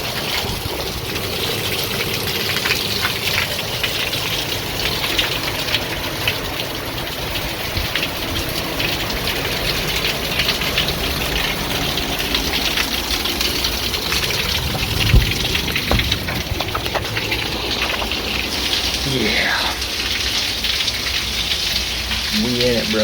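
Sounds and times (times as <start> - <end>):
heavy rain and wind: 0.0 - 23.0
dull thump: 14.4 - 18.2.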